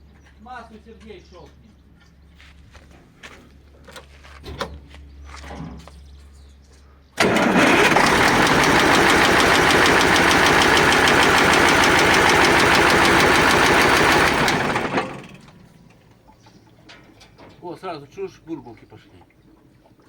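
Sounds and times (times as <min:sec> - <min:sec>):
truck diesel engine running: 0:07.2 - 0:16.1.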